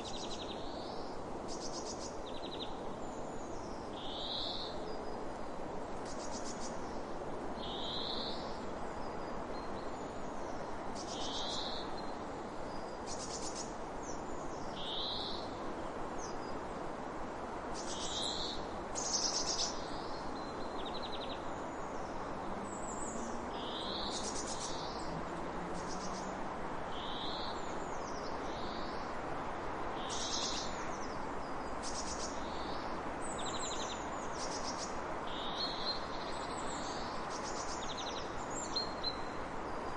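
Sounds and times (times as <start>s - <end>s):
rushing water: 21.6s - 39.9s.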